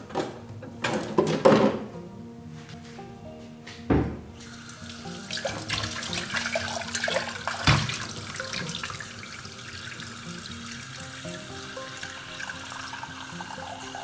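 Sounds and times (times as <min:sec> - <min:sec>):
knocks and thump: 0:03.8 - 0:04.4
tap running into sink: 0:03.9 - 0:14.0.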